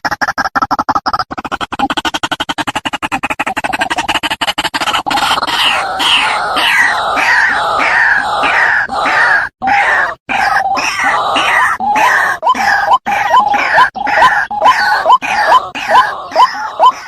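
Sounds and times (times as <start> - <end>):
waterhen calling harsh notes: 4.8 - 17.0.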